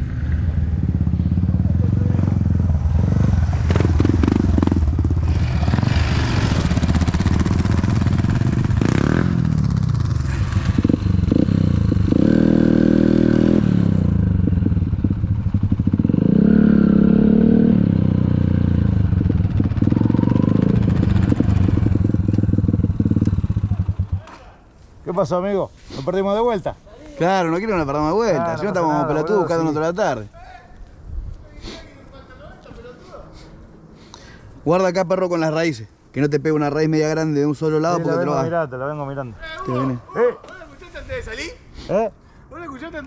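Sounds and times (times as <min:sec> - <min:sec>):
motorbike engine revving: 0:00.0 - 0:24.3.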